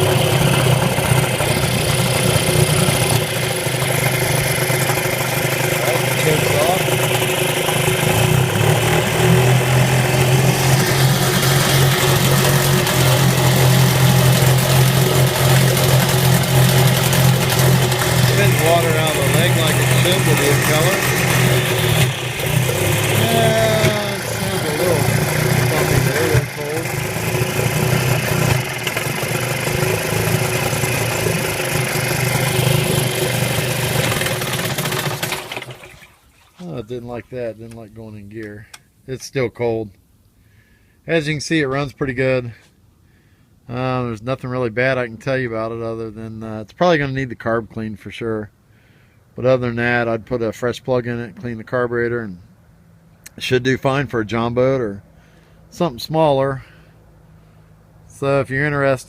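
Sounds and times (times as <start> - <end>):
outboard motor running: 0.0 - 37.4, 56.4 - 58.9.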